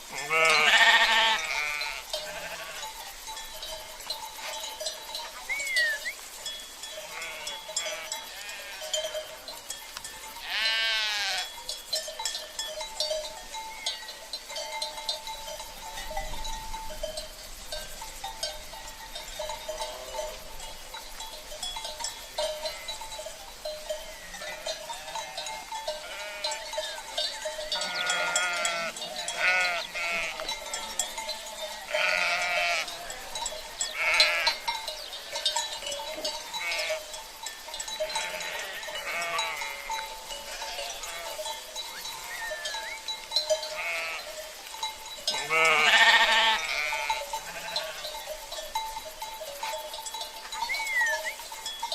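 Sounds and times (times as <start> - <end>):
cowbells ringing: 0.0 - 51.9
sheep bleating: 0.1 - 2.9, 7.0 - 9.4, 10.4 - 11.5, 24.9 - 26.8, 27.8 - 31.0, 31.9 - 33.4, 34.0 - 34.7, 36.6 - 37.0, 38.0 - 41.5, 43.7 - 44.4, 45.3 - 48.1.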